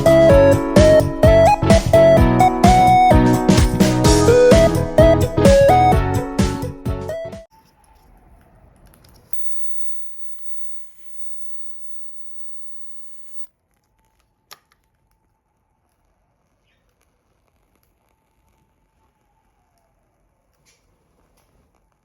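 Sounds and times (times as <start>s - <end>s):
fire crackling: 8.8s - 13.5s, 14.9s - 22.0s.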